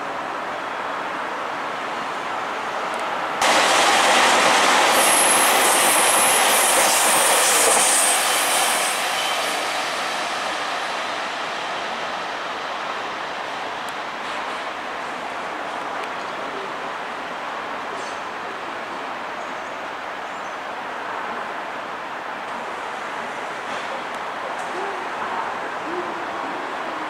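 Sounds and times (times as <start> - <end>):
diesel train rushing past: 1.6 - 15.6
high-pitched wheel squeal: 5.0 - 9.7.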